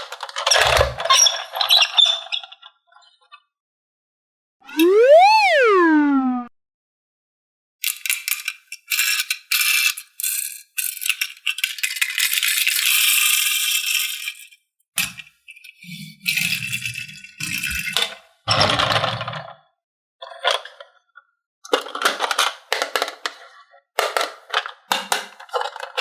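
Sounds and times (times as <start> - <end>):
plastic toy pieces rattling: 7.8 - 15.3, 16.3 - 18.1, 21.7 - 26.0.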